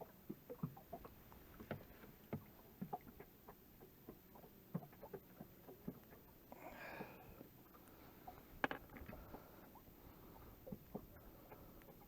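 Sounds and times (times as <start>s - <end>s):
waves knocking against boat hull: 0.5s - 3.3s.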